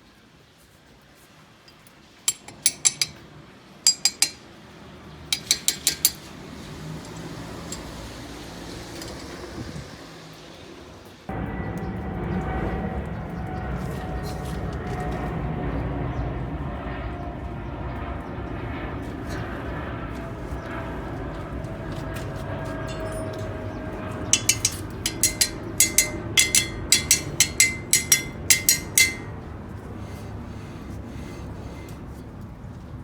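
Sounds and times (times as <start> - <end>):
sharp paired clicks: 24.4 - 29.3
van engine and road rumble: 29.3 - 33.0.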